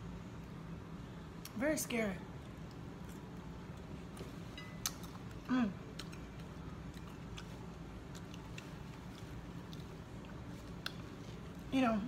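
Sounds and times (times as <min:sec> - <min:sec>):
low room hum: 0:00.0 - 0:12.0
person chewing food: 0:02.4 - 0:11.7.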